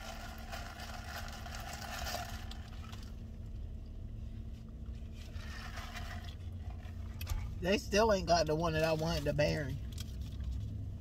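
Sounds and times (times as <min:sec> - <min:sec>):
straw scraping in plastic cup: 0:05.1 - 0:07.0.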